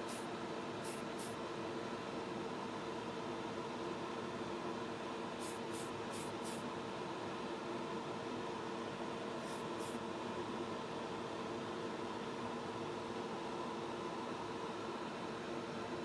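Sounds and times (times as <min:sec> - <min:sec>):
paint spray hisses: 0:00.0 - 0:01.4, 0:05.4 - 0:06.6, 0:09.4 - 0:10.0.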